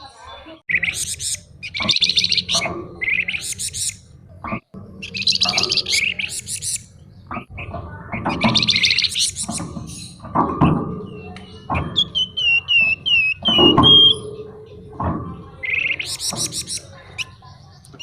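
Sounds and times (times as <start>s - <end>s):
bird whistled notes: 0.7s - 4.0s, 5.0s - 6.9s, 7.6s - 14.3s, 15.6s - 17.4s
bird chattering trills: 0.7s - 18.0s.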